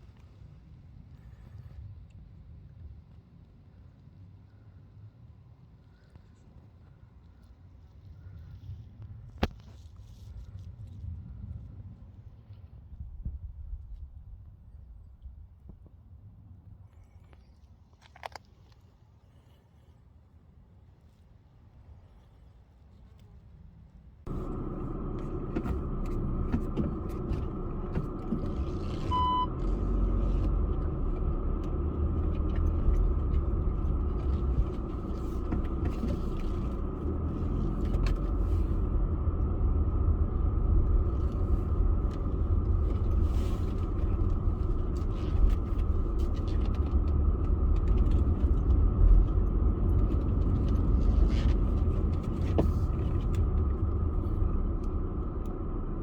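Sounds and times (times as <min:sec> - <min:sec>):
car engine and road noise: 0:24.2 - 0:56.0
short beep: 0:29.1 - 0:29.6.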